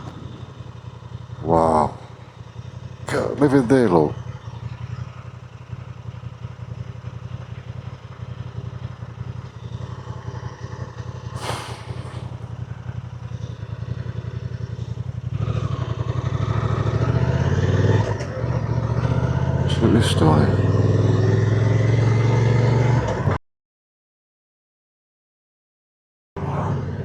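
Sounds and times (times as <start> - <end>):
motorcycle engine humming: 0.0 - 23.4
short whoosh: 11.4 - 12.7.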